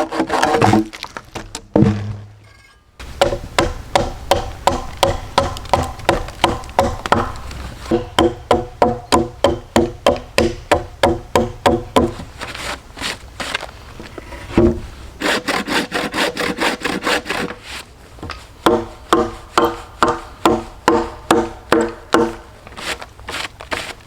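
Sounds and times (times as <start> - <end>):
hammer striking wood: 1.7 - 2.4, 3.0 - 12.3, 18.2 - 22.5.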